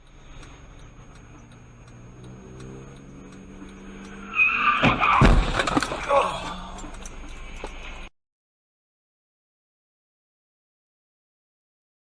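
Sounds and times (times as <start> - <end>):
car engine running: 0.0 - 8.1
tyres screeching: 2.1 - 8.0
crash impact thuds: 4.8 - 6.1.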